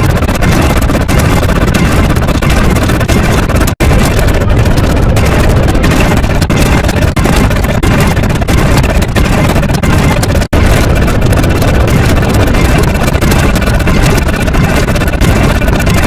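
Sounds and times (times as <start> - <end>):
loud steady rumbling: 0.0 - 16.0.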